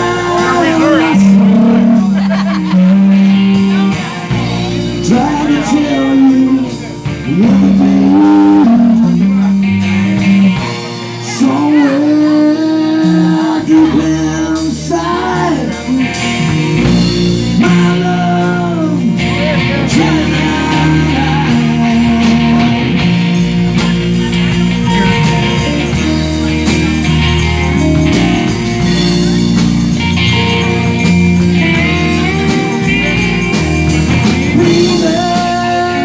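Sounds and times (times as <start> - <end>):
person singing: 0.0 - 16.4, 17.5 - 36.0
bass line: 0.0 - 36.0
drums keeping steady beat: 0.0 - 36.0
guitar: 0.0 - 36.0.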